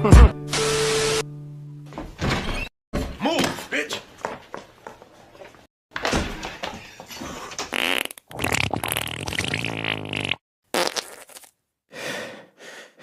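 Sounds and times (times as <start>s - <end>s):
rasping fart noise: 7.7s - 11.5s.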